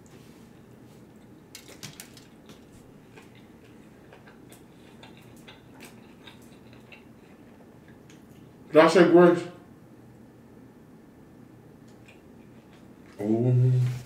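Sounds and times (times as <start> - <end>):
wet chewing mouth clicks: 3.2 - 8.4.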